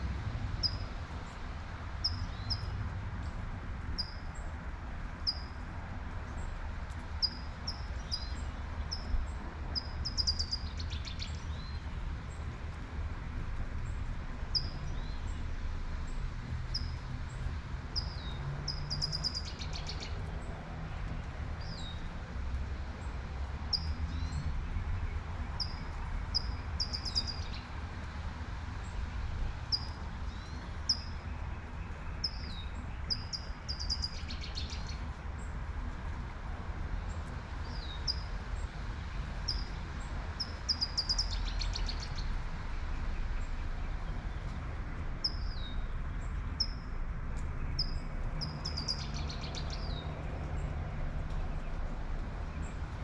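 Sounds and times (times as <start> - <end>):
songbird chirping and trilling: 9.8 - 11.8, 18.0 - 20.2, 25.5 - 27.7, 29.7 - 35.1, 40.4 - 42.3, 47.6 - 50.6.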